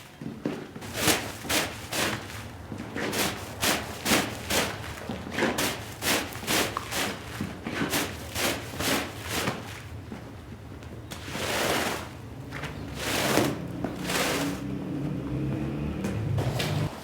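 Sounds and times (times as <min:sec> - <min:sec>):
brush sweeping a rug: 0:00.8 - 0:09.9, 0:11.1 - 0:15.2.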